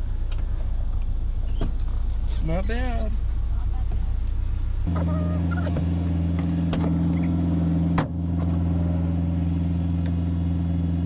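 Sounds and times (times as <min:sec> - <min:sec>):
pickup engine running: 0:03.2 - 0:11.0.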